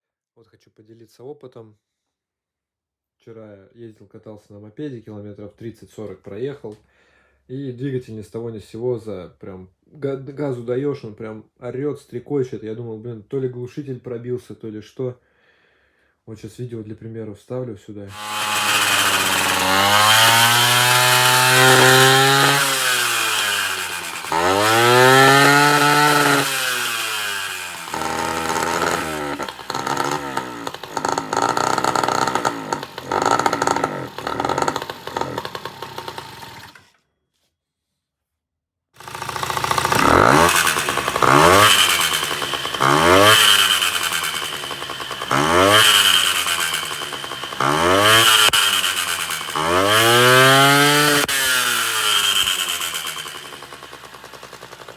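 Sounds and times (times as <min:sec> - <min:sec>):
scooter engine revving: 0:18.1 - 0:36.9, 0:39.0 - 0:54.9.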